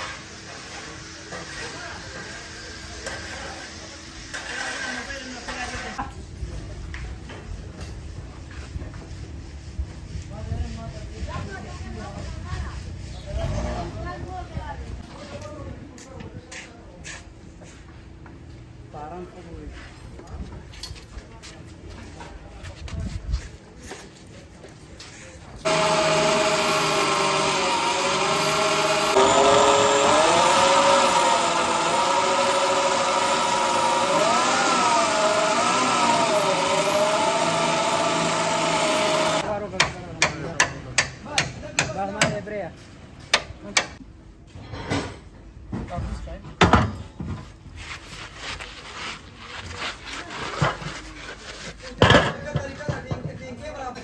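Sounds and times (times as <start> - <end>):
motor-driven machine droning hum: 25.7 - 39.4.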